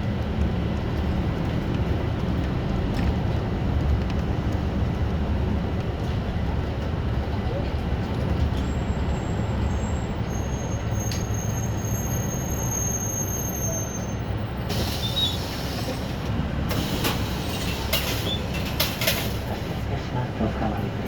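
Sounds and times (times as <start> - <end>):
bus engine and road rumble: 0.0 - 21.0
high brake squeal: 8.6 - 16.2, 16.8 - 18.6.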